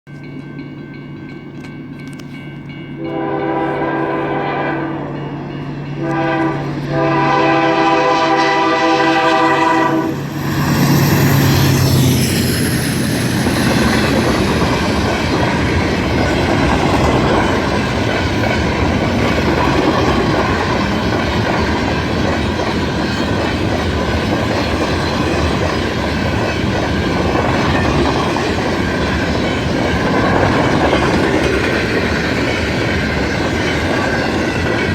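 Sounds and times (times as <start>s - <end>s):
diesel locomotive engine: 0.1s - 34.9s
train air horn blasts: 3.0s - 5.2s, 6.0s - 10.3s.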